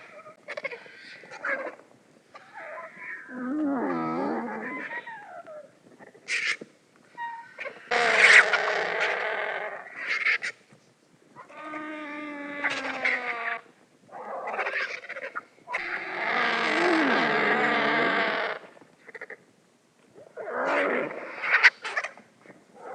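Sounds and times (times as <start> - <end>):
vulture harsh raspy calls: 6.0 - 6.6, 7.2 - 10.6, 20.6 - 22.2.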